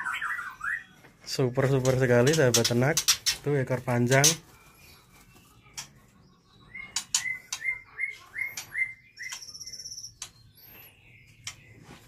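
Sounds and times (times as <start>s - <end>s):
birds calling: 0.0s - 12.0s
fast bird rattle: 1.8s - 3.5s
sharp bird clicks: 6.8s - 10.6s
high arching bird whistles: 6.8s - 11.3s.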